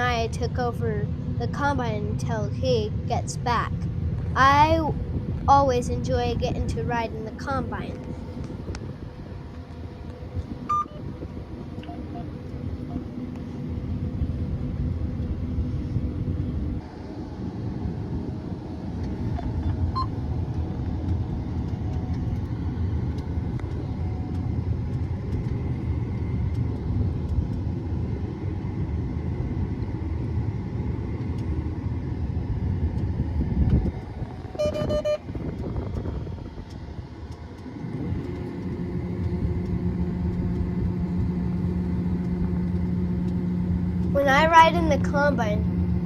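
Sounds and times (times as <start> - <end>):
combine harvester rumbling: 0.0 - 46.0
short horn-like beep: 34.6 - 35.2.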